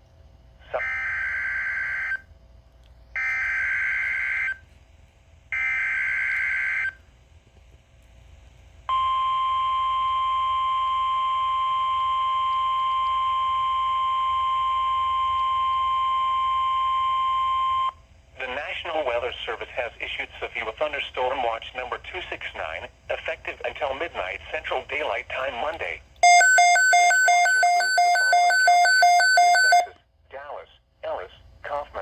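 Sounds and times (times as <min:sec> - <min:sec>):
steady warning alarm tone: 0:26.2 - 0:30.0.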